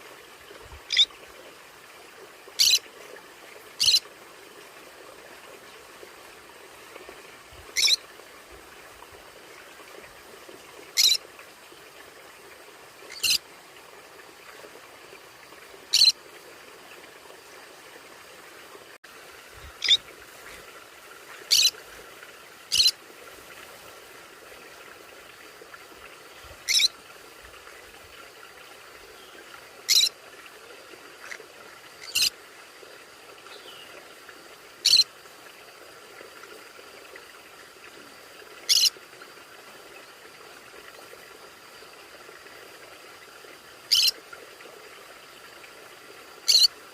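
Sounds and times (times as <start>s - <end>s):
parrot high-pitched calls: 0.9s - 1.1s, 2.6s - 2.8s, 3.8s - 4.0s, 7.8s - 8.0s, 11.0s - 11.2s, 13.1s - 13.4s, 15.9s - 16.2s, 19.8s - 20.0s, 21.5s - 21.7s, 22.7s - 22.9s, 26.7s - 26.9s, 29.9s - 30.1s, 32.0s - 32.3s, 34.8s - 35.1s, 38.7s - 38.9s, 43.9s - 44.1s, 46.5s - 46.7s.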